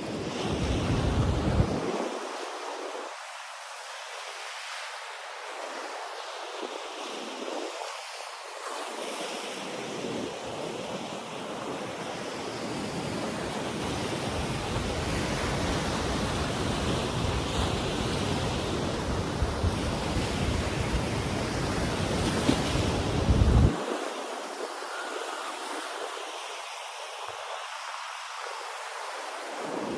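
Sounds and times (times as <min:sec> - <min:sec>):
ocean surf breaking on beach: 0:00.0 - 0:29.9
wind buffeting microphone: 0:00.1 - 0:02.2, 0:13.2 - 0:25.2.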